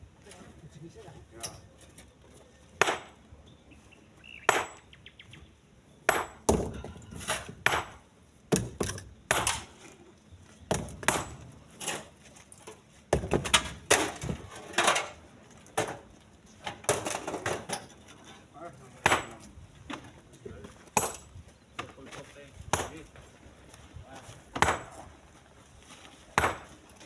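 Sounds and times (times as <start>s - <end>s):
stones clunking into truck bed: 6.1s - 9.9s, 10.7s - 20.2s.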